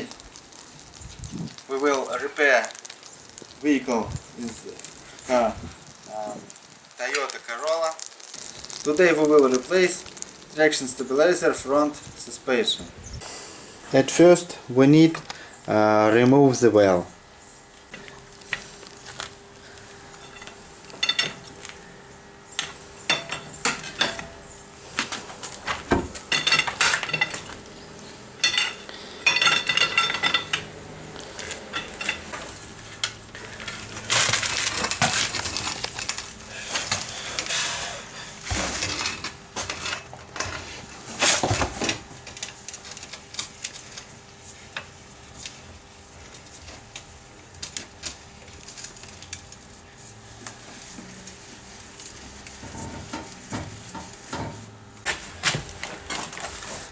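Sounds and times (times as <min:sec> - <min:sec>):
metal tools and nuts clinking: 0:20.1 - 0:21.6, 0:22.6 - 0:24.4, 0:26.3 - 0:27.6, 0:28.4 - 0:30.7, 0:31.4 - 0:35.8.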